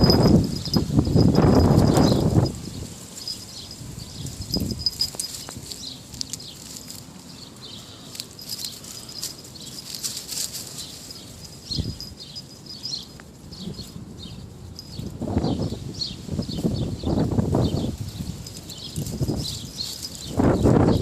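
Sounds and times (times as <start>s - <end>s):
small birds chirping: 0.0s - 21.0s
light pattering and rustling: 3.2s - 14.0s.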